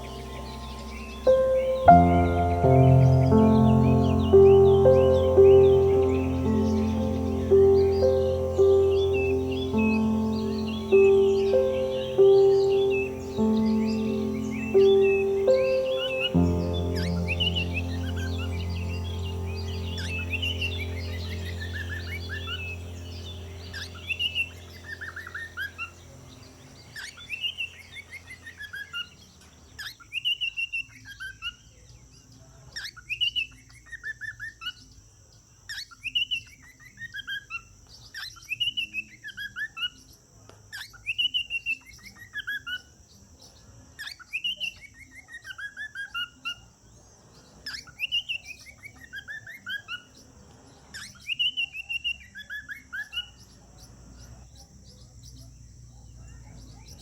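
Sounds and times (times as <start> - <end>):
low hum with musical tones: 0.0 - 28.6.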